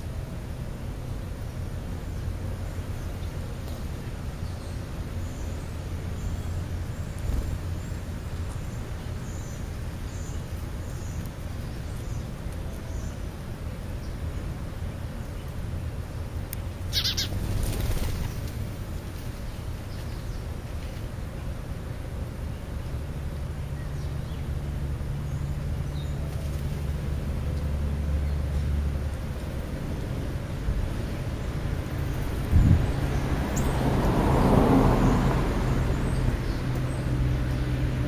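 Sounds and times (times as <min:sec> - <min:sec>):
low outdoor rumble: 0:00.0 - 0:38.0
faint high bird chirps: 0:16.9 - 0:17.4.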